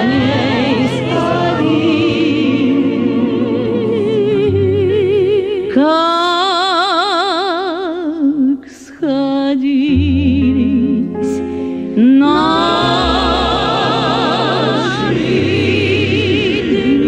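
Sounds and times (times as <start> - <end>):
low steady accompaniment: 0.0 - 6.2, 9.6 - 17.0
person singing with vibrato: 0.0 - 17.0.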